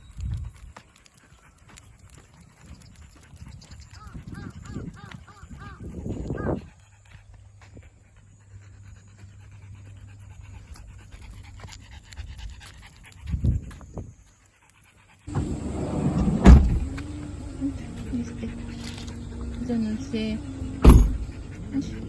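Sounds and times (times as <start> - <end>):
dog panting: 0.1 - 22.0
sharp loud thump: 16.4 - 16.9, 20.8 - 21.3.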